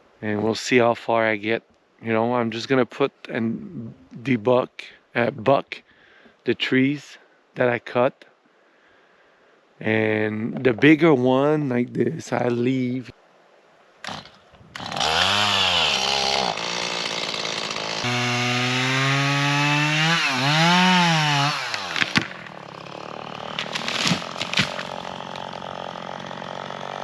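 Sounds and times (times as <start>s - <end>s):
chainsaw revving: 14.0s - 27.0s.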